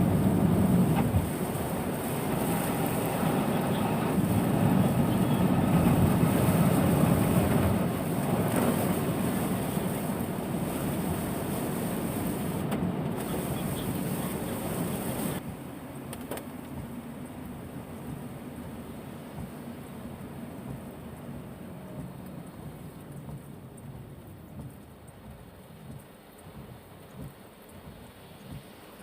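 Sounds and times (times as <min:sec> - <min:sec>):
tyres rushing on wet road: 0:00.0 - 0:29.0.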